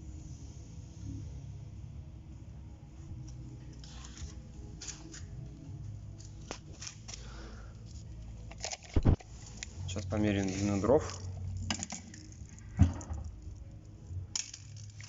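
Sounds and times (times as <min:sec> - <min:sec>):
low steady hum: 0:00.0 - 0:15.0
objects clicking and rustling: 0:08.3 - 0:09.8, 0:10.4 - 0:13.6, 0:14.3 - 0:15.0.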